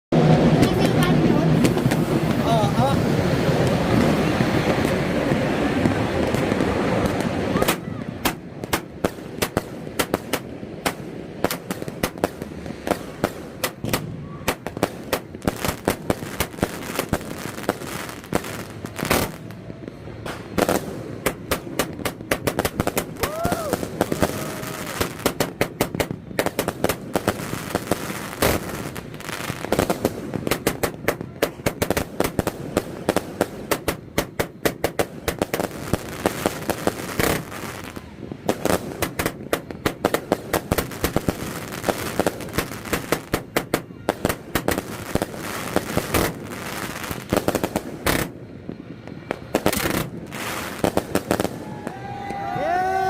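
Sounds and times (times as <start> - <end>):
fireworks bangs and crackles: 0.1 - 53.0
firework whistling glide: 12.8 - 30.8.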